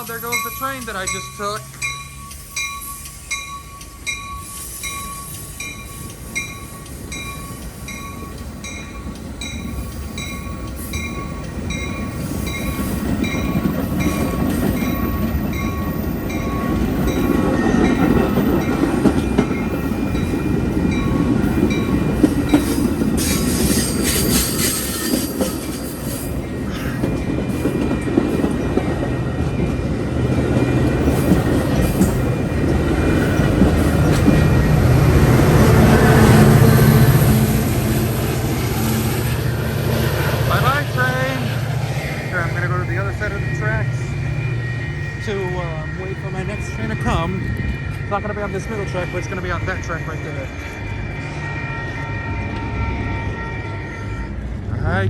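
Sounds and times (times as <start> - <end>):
train wheel and rail rumble: 0.0 - 55.0.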